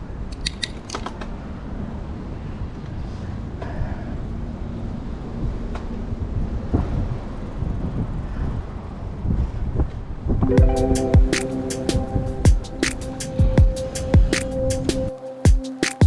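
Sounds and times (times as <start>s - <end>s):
music: 10.4s - 16.0s.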